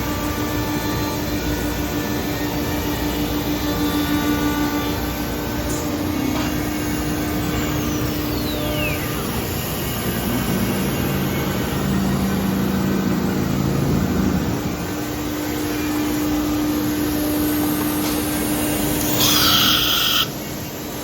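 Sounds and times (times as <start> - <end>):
spindle whine: 5.5 - 21.0
machine roar: 10.0 - 20.9.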